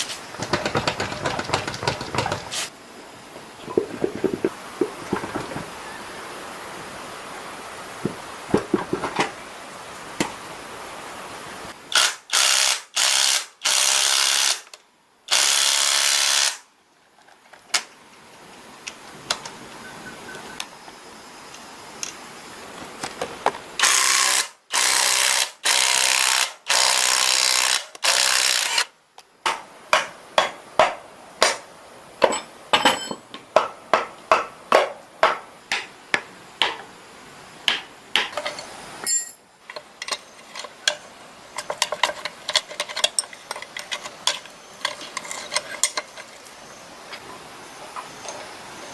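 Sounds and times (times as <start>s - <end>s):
tool clicks and taps: 0.4s - 2.5s
loud hissing bursts: 1.6s - 2.8s.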